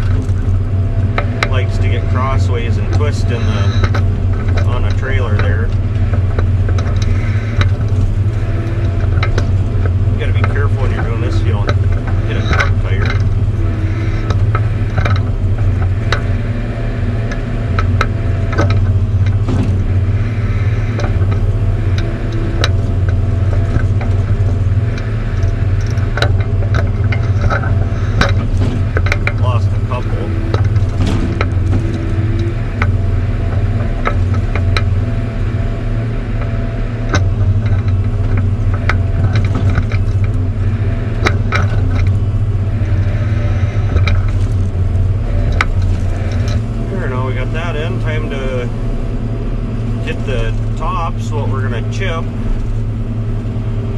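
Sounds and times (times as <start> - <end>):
engine droning: 0.0 - 53.9
machine clicks and knocks: 17.2 - 35.2, 36.3 - 44.7.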